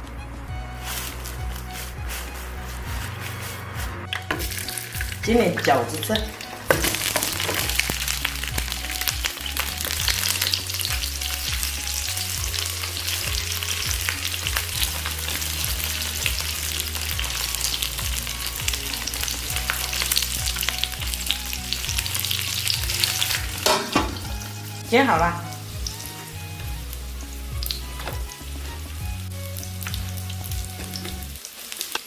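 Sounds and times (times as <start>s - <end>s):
dumplings sizzling in oil: 4.1s - 32.0s.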